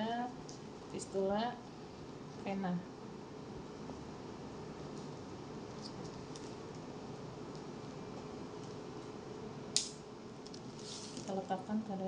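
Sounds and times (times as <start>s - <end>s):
steady hum with thin tone: 0.0s - 12.0s.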